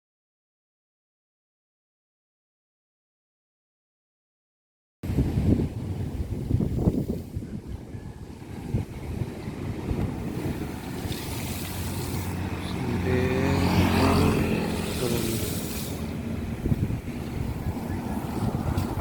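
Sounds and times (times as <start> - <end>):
wind buffeting microphone: 5.0 - 19.0
rough sea: 5.1 - 19.0
engine drone: 7.8 - 19.0.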